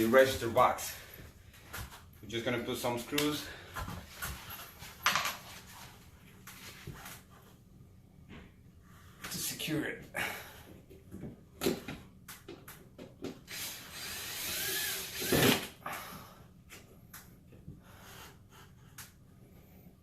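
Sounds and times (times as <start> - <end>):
power drill driving screw into metal: 13.5 - 15.7.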